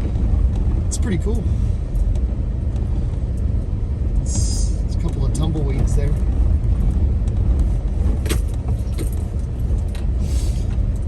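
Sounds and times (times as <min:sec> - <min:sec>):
vehicle rumbling over dirt: 0:00.0 - 0:11.0
sharp clicks and rattles: 0:04.9 - 0:11.0.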